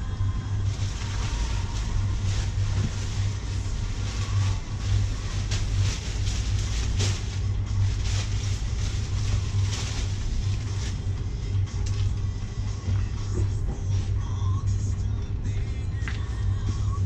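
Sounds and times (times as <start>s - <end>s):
low hum: 0.0s - 17.0s
plastic cover rustling: 0.5s - 11.1s.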